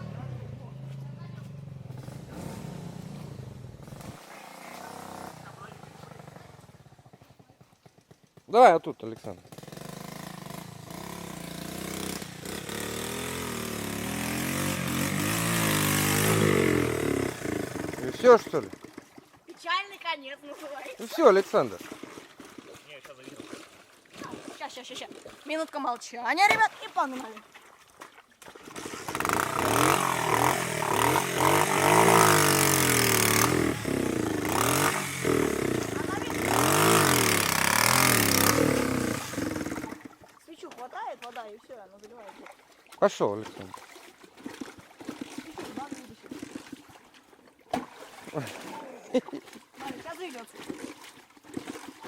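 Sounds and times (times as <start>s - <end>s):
off-road vehicle engine revving: 0.0s - 7.5s, 9.1s - 19.1s, 28.7s - 40.2s.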